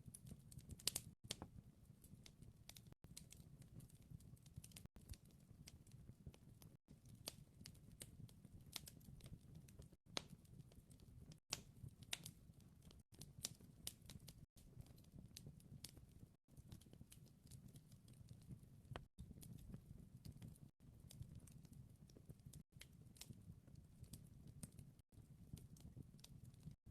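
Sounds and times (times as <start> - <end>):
wood fire crackling: 0.1 - 26.9.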